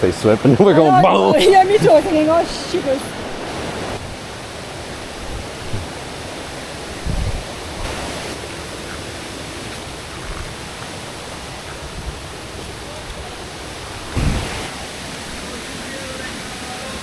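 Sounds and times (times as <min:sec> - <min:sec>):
flowing river water: 0:00.0 - 0:17.0
low thump: 0:14.1 - 0:15.0.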